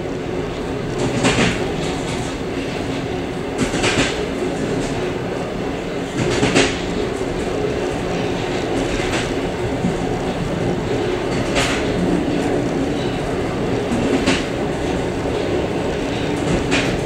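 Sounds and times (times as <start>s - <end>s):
train wheels rumbling on rails: 0.0s - 17.0s
wheels clacking over rail joints: 6.1s - 17.0s.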